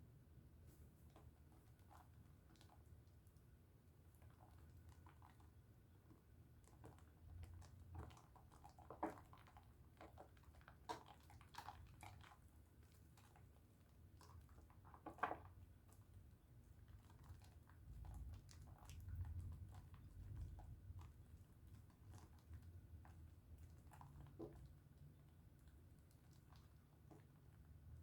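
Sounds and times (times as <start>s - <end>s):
wet squishing of soap lather: 1.7s - 28.0s.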